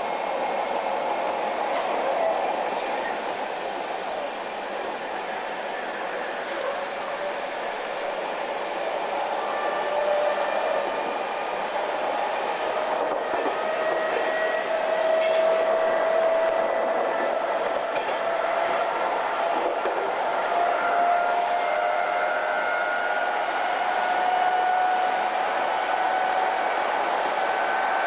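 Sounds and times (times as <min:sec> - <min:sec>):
electric train running with whine: 0:00.0 - 0:28.0.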